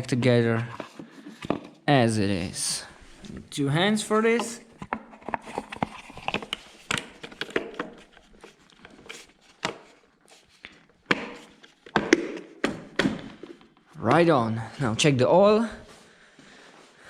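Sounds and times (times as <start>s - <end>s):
plastic parts clicking and knocking: 0.2s - 1.8s, 4.4s - 10.0s, 10.6s - 14.0s.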